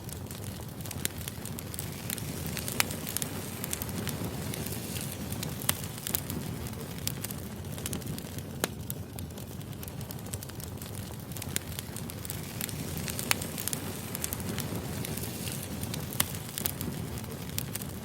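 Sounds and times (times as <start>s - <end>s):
firewood crackling and popping: 0.0s - 18.0s.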